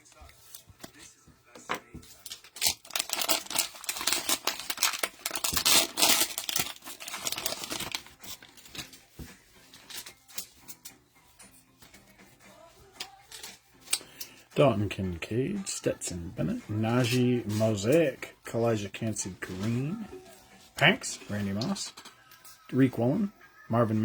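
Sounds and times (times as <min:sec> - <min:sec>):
cellophane wrapper crinkling: 0:02.1 - 0:09.0.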